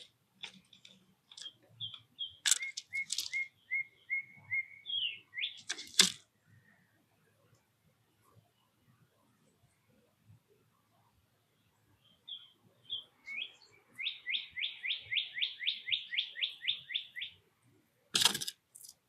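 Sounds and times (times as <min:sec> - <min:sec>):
songbird whistling: 0:01.4 - 0:05.7, 0:12.3 - 0:17.4.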